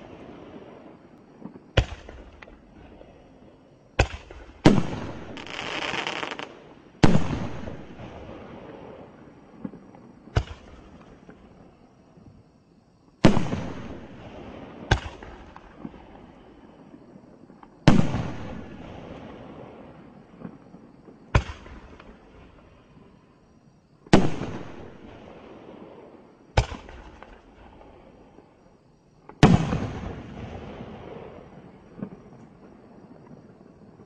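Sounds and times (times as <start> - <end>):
firework bangs with echo: 1.5 - 3.0, 4.0 - 8.6, 9.6 - 11.4, 13.2 - 16.1, 21.3 - 22.0, 26.6 - 27.7, 29.3 - 32.2.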